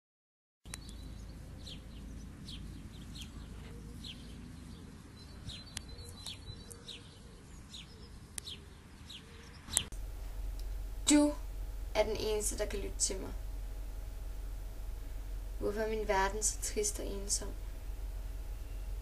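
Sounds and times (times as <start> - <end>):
steady low rumble: 0.7 - 6.6, 9.8 - 19.0
small birds chirping: 0.7 - 19.0.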